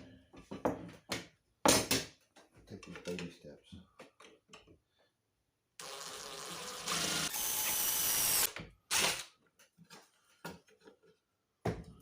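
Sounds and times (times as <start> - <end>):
power drill boring into steel: 5.8 - 9.3.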